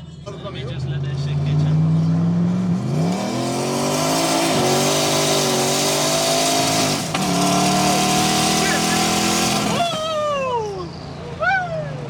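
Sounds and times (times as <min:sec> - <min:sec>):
car engine accelerating hard: 0:00.5 - 0:10.3.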